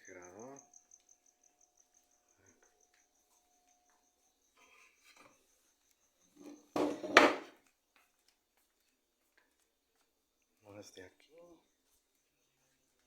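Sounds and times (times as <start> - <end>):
scraping knock: 6.4 - 7.5.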